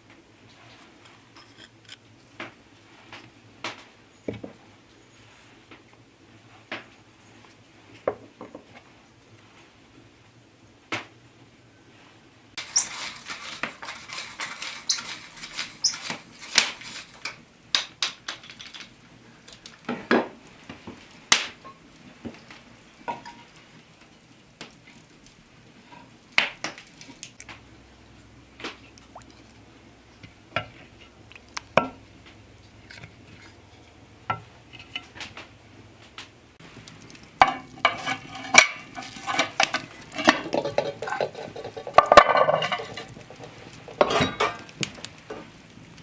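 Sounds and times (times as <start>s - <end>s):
utensils and dishes clattering: 12.6s - 17.4s, 36.8s - 45.5s.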